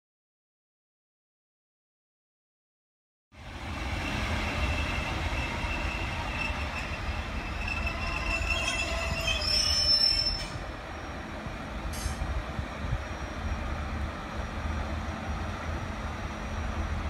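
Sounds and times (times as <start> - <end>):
diesel railbus rumbling: 3.4 - 17.0
higher squeal: 4.3 - 10.6
high metallic squeal: 4.5 - 10.6.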